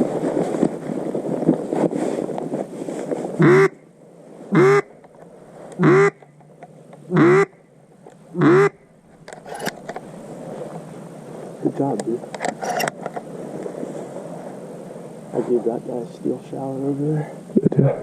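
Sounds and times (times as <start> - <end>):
steady low hiss: 0.0 - 18.0
duck quacks: 3.4 - 3.8, 4.5 - 4.9, 5.8 - 6.2, 7.1 - 7.6, 8.3 - 8.8.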